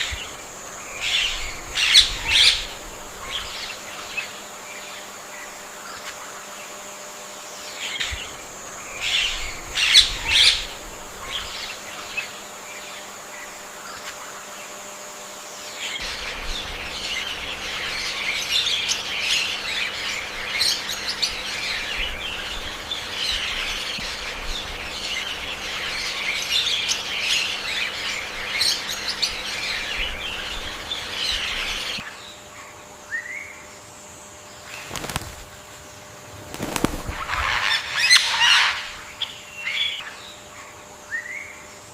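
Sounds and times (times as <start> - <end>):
birds chirping chorus: 0.0 - 41.9
peafowl calling: 34.8 - 40.2.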